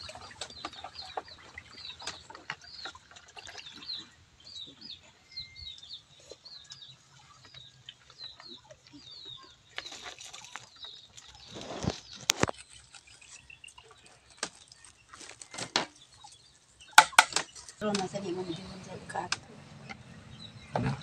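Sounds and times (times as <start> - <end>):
birds peeping: 0.0 - 21.0
rustling: 6.2 - 16.2.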